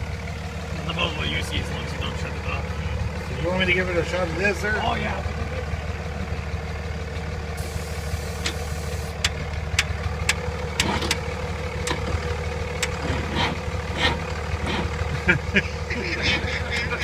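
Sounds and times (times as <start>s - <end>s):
diesel engine idling: 0.0s - 17.0s
spray hissing: 7.6s - 9.1s.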